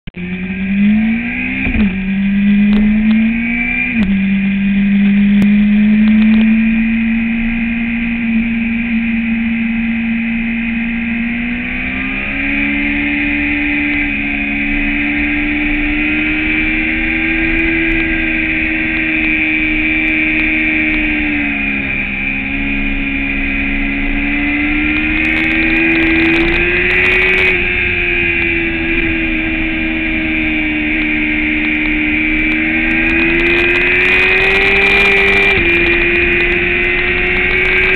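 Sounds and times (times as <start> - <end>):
motorcycle engine running hard: 0.0 - 37.9.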